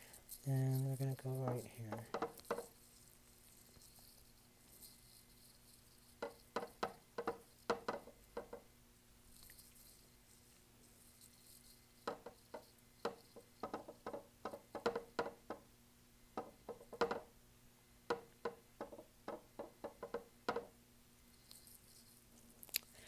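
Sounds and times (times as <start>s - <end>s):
paintbrush tapping on canvas: 6.2s - 8.6s, 12.1s - 15.6s, 16.4s - 17.3s.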